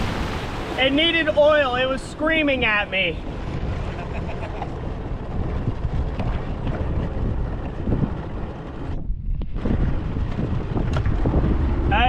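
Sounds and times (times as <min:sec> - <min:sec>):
rushing water: 0:00.0 - 0:08.0
wind buffeting microphone: 0:00.0 - 0:12.0
motorboat engine drone: 0:03.2 - 0:11.9.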